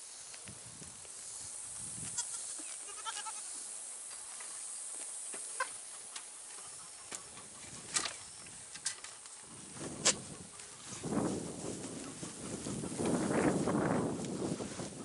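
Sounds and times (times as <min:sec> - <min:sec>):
steady high hiss: 0:00.0 - 0:15.0
goat bleating: 0:02.2 - 0:03.5.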